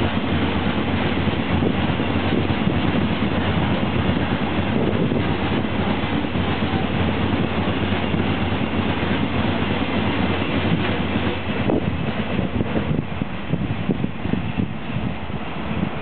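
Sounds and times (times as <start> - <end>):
freight train rolling past: 0.0 - 16.0
wheels clickety-clack on rails: 0.0 - 16.0.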